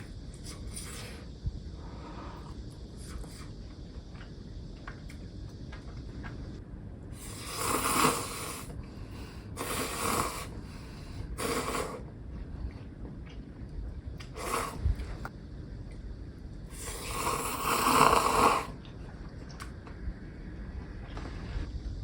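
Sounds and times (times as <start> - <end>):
airy mouth sounds: 14.2 - 14.9, 16.7 - 18.8.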